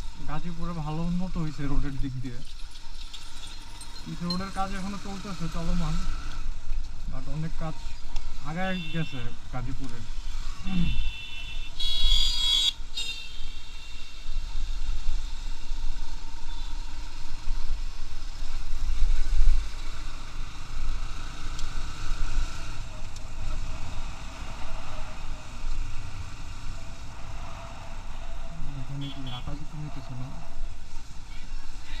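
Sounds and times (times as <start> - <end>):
wind and road noise rumble: 0.0 - 8.6, 9.2 - 32.0
motorcycle horn: 8.6 - 9.4, 10.6 - 14.2, 29.0 - 29.7.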